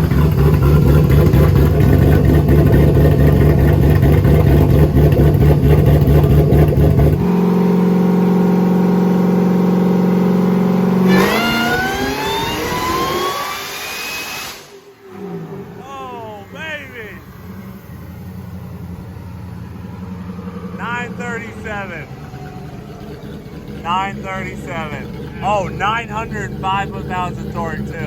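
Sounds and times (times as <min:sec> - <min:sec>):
engine running on dyno: 0:00.0 - 0:28.0
rising whine: 0:07.3 - 0:28.0.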